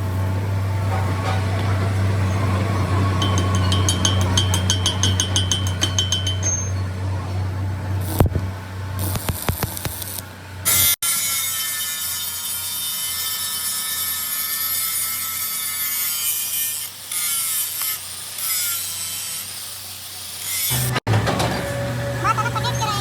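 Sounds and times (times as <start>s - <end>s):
metal-cutting tool whining: 9.0s - 23.0s.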